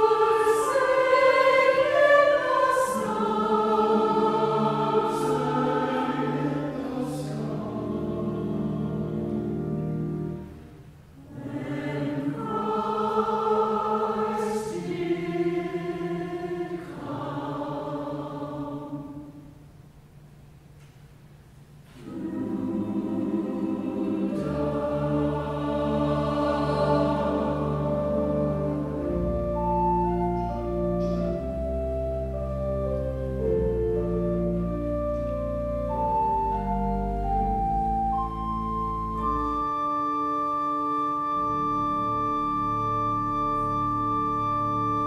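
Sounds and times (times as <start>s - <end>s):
church choir singing: 0.0s - 10.6s, 11.2s - 19.7s, 21.9s - 45.0s
organ playing: 0.0s - 19.0s, 22.0s - 45.0s
deep organ bass notes: 1.9s - 13.0s, 22.1s - 45.0s.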